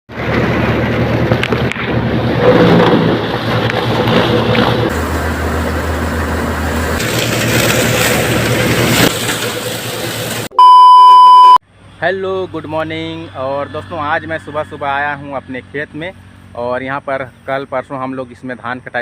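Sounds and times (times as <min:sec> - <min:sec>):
threshing machinery running: 0:00.1 - 0:10.5
tractor engine running: 0:00.1 - 0:10.6.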